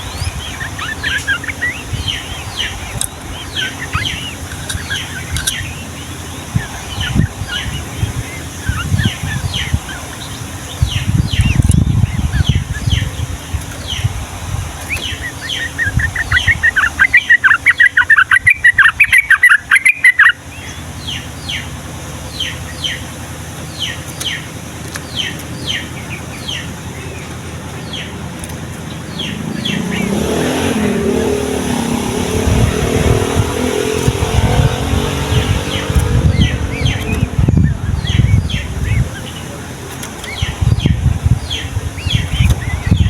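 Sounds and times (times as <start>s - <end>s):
bird singing whistled notes: 0.0s - 13.2s, 14.9s - 21.7s
bird rapid chattering: 0.0s - 43.0s
motor vehicle engine: 0.0s - 43.0s.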